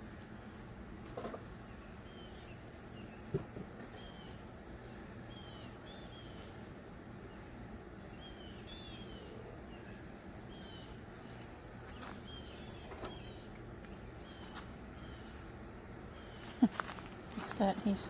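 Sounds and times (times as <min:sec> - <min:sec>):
low background noise: 0:00.0 - 0:18.0
bird chirping: 0:01.6 - 0:03.3, 0:05.3 - 0:06.5, 0:07.3 - 0:16.6.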